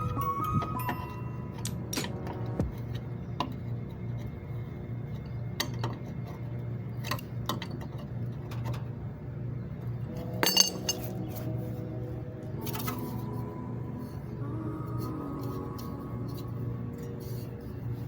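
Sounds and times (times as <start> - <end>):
steady low hum: 0.0 - 18.0
ringing metal clink: 10.2 - 11.4.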